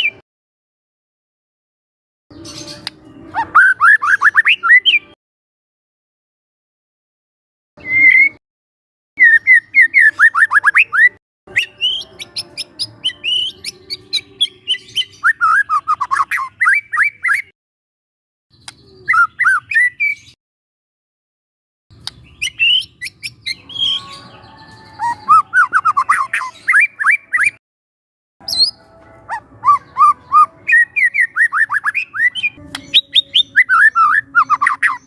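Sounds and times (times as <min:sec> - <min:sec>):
shama singing whistles and chips: 0:07.8 - 0:08.4, 0:09.2 - 0:17.4, 0:18.6 - 0:20.4, 0:22.1 - 0:27.6, 0:28.4 - 0:35.0.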